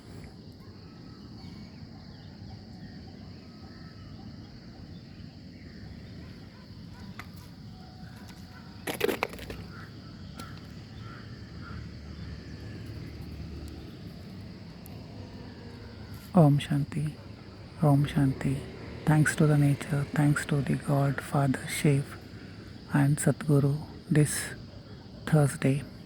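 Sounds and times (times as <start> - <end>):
faint bird calls: 0.0 - 16.4
high insect hum: 0.0 - 26.0.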